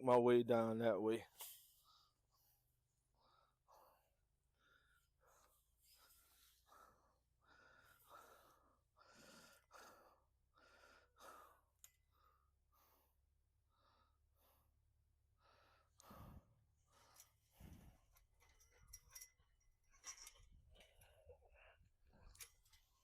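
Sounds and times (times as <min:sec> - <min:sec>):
person breathing quickly: 0:01.7 - 0:18.1.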